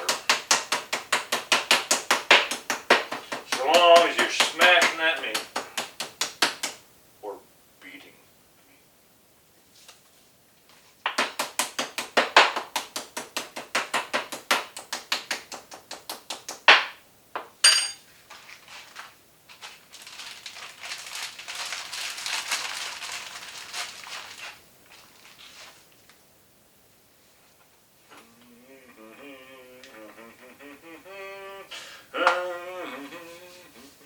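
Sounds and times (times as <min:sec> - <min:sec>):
soft rustling: 0:09.6 - 0:11.0, 0:18.0 - 0:26.2
metallic clink: 0:17.6 - 0:18.0.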